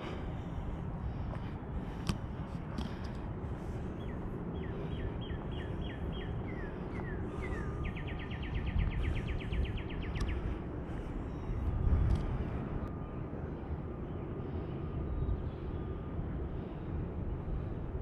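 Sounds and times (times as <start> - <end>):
low rumbling noise: 0.0 - 18.0
songbird whistling and trilling: 4.0 - 10.4.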